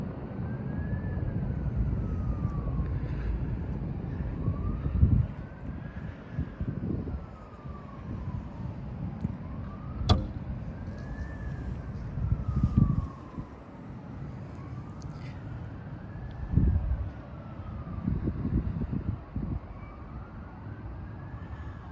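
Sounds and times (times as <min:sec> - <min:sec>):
sharp click: 0:10.1 - 0:11.1.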